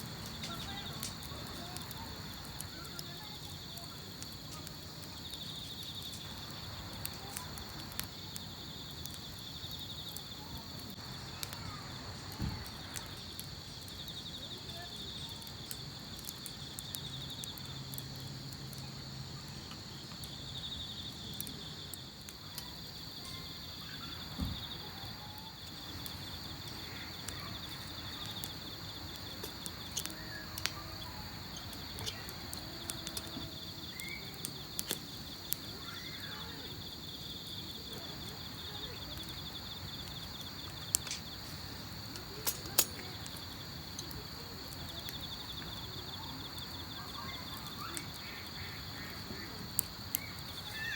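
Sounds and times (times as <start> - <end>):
insects trilling: 0.0 - 50.9
sharp clicks: 42.1 - 43.4.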